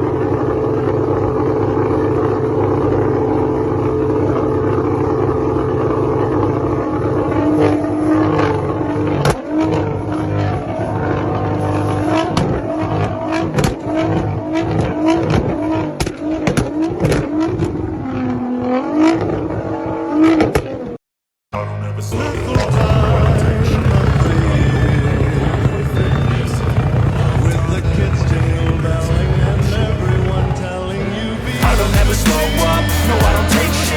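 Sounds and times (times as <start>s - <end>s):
car engine revving: 22.1s - 33.9s.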